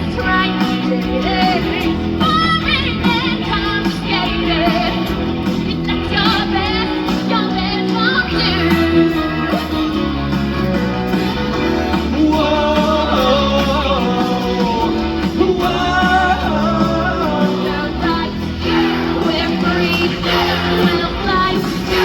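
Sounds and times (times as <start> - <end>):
guitar: 0.0 - 22.0
steady bass line: 0.0 - 22.0
person singing: 11.9 - 22.0.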